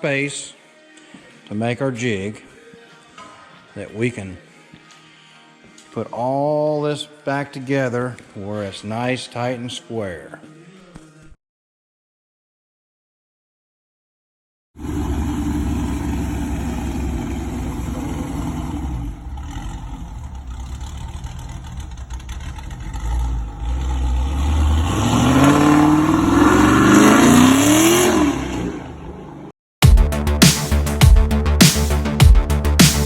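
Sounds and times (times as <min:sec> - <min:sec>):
car engine accelerating: 0:14.8 - 0:29.5.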